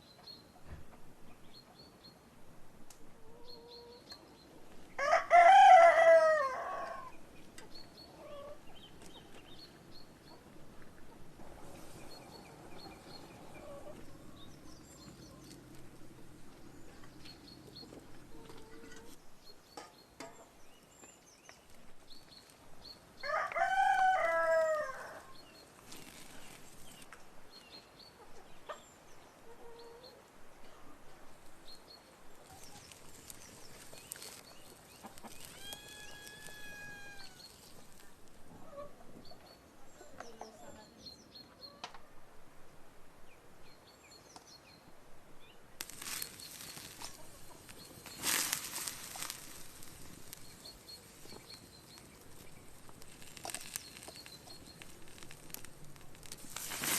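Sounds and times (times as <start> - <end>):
rooster crowing: 5.0 - 7.2, 23.2 - 25.3, 35.6 - 37.5
small birds chirping: 6.9 - 23.3, 24.0 - 41.8, 43.6 - 56.9.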